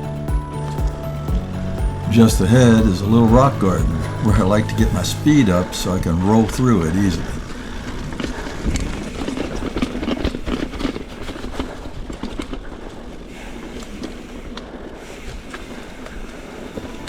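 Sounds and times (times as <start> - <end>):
bike chain and frame rattle: 5.8 - 17.0.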